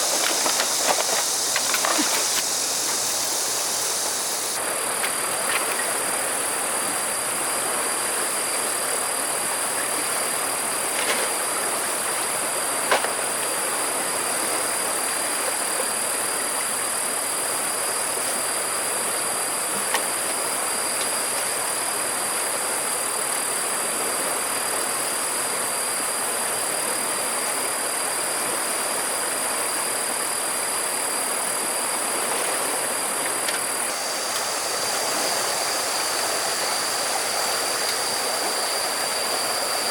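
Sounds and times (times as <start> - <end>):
high-pitched insect drone: 0.0 - 4.6, 33.8 - 39.9
river water flowing: 0.0 - 19.7, 29.2 - 39.9.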